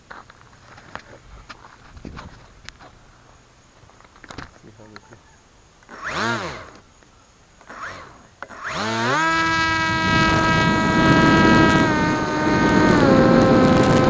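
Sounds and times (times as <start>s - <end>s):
electric motor whine: 5.8s - 6.8s, 7.6s - 14.0s
propeller air rush: 7.6s - 14.0s.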